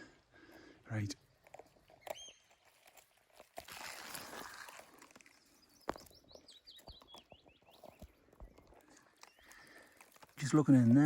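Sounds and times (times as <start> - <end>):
songbird singing: 0.0 - 11.0
rustling: 1.3 - 6.2.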